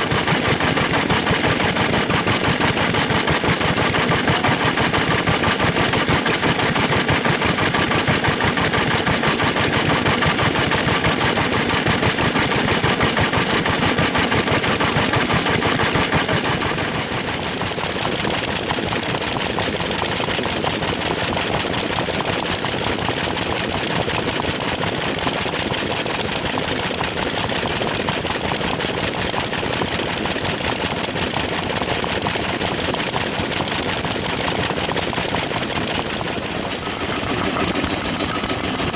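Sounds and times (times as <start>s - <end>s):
stationary engines clattering: 0.0s - 38.9s.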